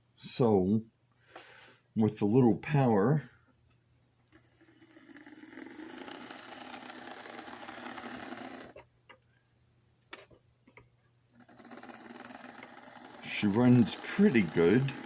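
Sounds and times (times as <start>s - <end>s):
model train motor whirring: 4.3s - 8.8s, 11.4s - 15.0s.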